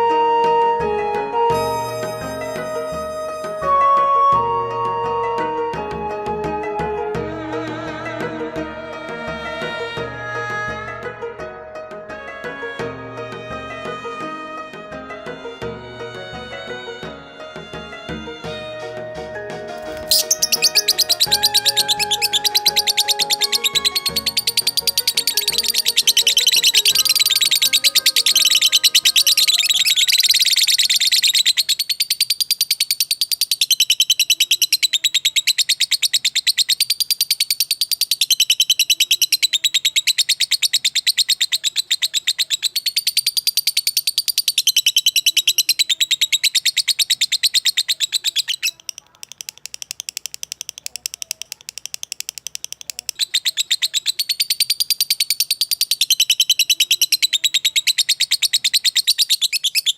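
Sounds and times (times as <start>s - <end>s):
songbird chirping: 0.0s - 10.2s, 17.7s - 59.9s
music: 0.0s - 32.5s.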